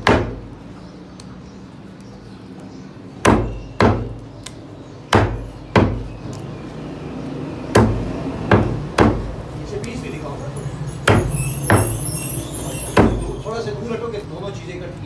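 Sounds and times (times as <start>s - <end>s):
cleaver chopping chicken: 3.2s - 6.4s, 7.7s - 10.0s.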